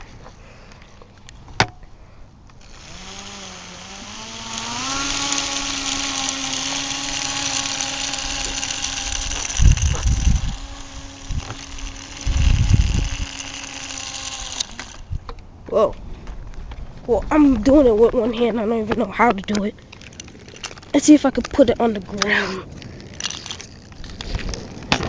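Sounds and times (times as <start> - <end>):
small electric fan motor whine: 2.6 - 15.3.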